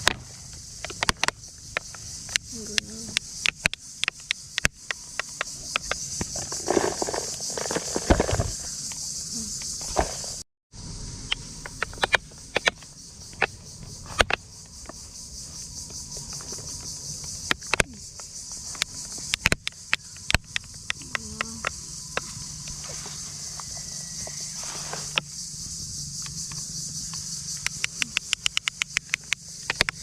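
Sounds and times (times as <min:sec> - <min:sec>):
sharp clicks and knocks: 0:00.0 - 0:09.0, 0:11.3 - 0:15.0, 0:17.2 - 0:22.8, 0:26.2 - 0:30.0
high-pitched insect drone: 0:00.0 - 0:30.0.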